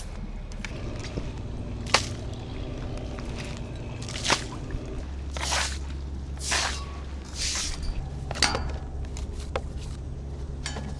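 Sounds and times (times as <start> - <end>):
wet squishing swishes: 0.0 - 8.3.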